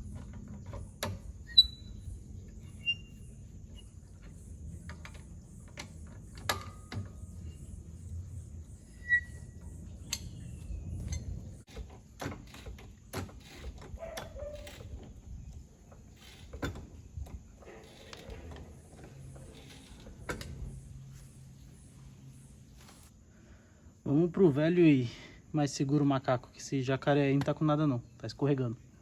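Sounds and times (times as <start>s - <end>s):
short high squeak: 1.4s - 3.9s, 8.8s - 9.7s
metal clicks and knocks: 4.2s - 7.5s.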